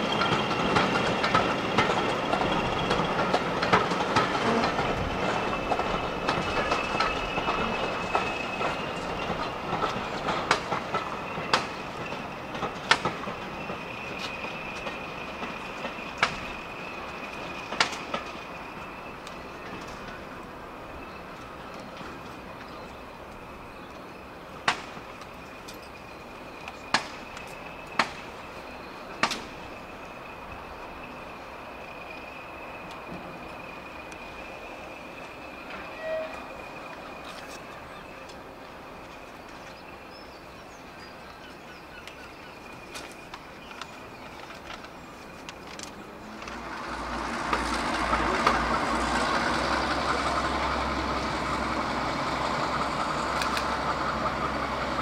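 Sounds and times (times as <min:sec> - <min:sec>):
train wheels clicking over rail joints: 0:00.0 - 0:55.0
faint high squeal: 0:32.1 - 0:38.3.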